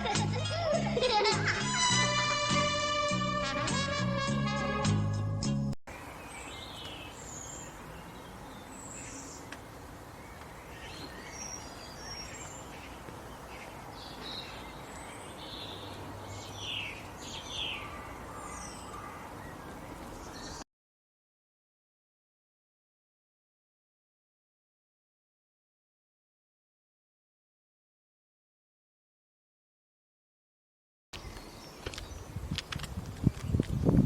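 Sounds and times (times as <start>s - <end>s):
outdoor background noise: 0.0s - 4.3s, 5.9s - 20.6s, 31.2s - 34.0s
background music: 0.0s - 5.8s
birds chirping: 5.9s - 20.6s, 31.2s - 34.0s.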